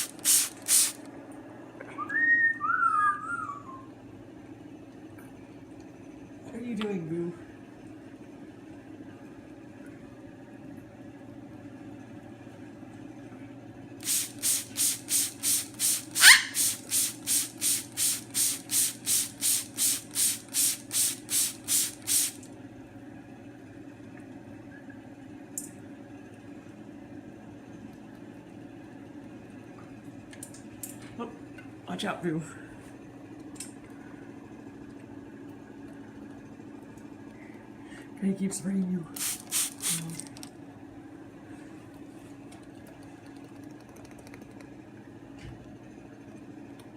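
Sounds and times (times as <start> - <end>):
spray bottle squirting: 0.0 - 1.1, 14.0 - 22.5, 39.2 - 40.5.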